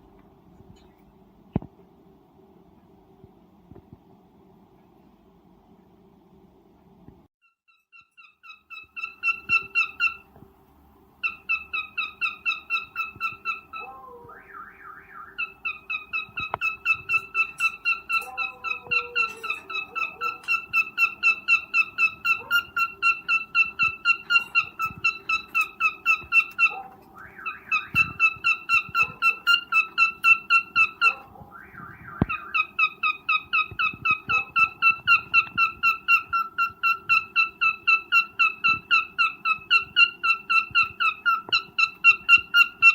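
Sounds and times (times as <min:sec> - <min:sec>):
cockatiel chirping: 0:07.7 - 0:10.3, 0:11.2 - 0:42.9.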